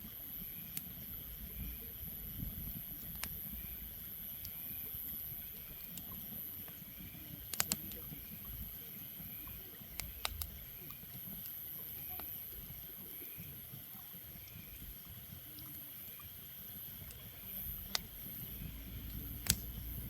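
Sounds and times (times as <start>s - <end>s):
sharp clicks: 7.5s - 8.1s, 9.4s - 11.5s, 19.0s - 20.0s.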